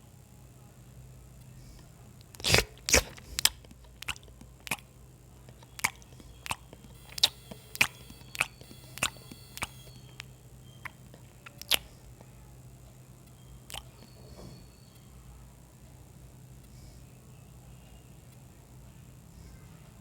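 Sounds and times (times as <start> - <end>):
mouth clicks: 2.4 - 4.9, 5.5 - 11.9, 13.7 - 14.0
person chewing food: 2.4 - 12.2, 13.7 - 14.1.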